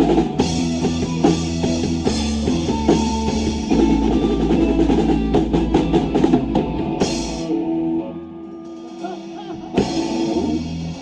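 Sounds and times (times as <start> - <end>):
drum fill: 0.0 - 7.5.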